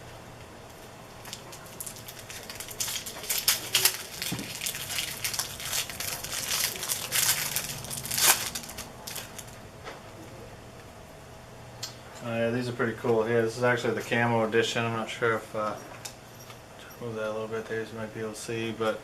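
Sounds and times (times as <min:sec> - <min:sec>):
plastic wrappers crinkling and tearing: 0:01.2 - 0:09.6.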